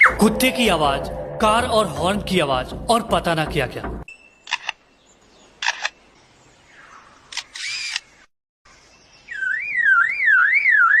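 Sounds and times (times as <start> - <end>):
bird mimicking shutter clicks: 5.6 - 6.0, 7.3 - 8.1
bird mimicking motor whirring: 7.3 - 8.1
bird mimicking car alarm: 9.3 - 11.0.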